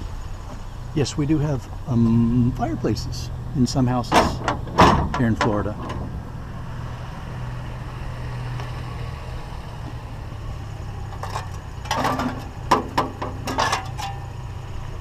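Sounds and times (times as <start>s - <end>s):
truck engine idling: 0.0s - 15.0s
metal clanks and knocks: 4.1s - 6.2s, 11.1s - 14.3s.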